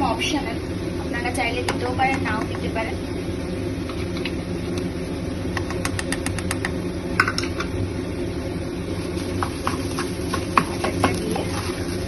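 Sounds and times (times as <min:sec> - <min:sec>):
low motor hum: 0:00.0 - 0:12.0
utensils clicking on metal pan: 0:09.4 - 0:11.8.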